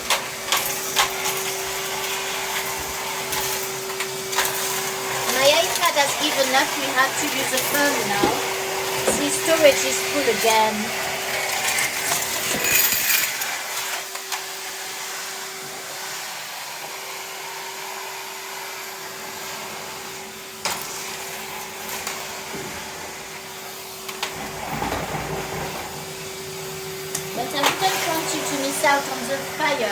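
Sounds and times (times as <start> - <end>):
vacuum cleaner whine and hiss: 0.0 - 29.9
crackling and rattling: 11.5 - 13.5, 24.1 - 26.1.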